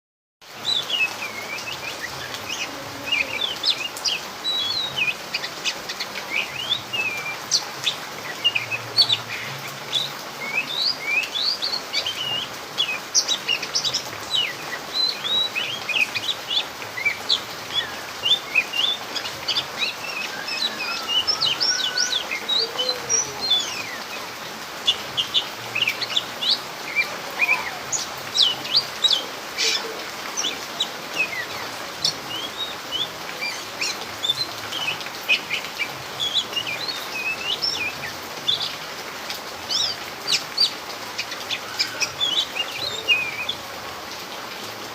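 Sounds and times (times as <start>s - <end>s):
rain falling: 0.4s - 44.9s
bird singing whistled chirps: 14.4s - 24.2s, 32.3s - 35.0s.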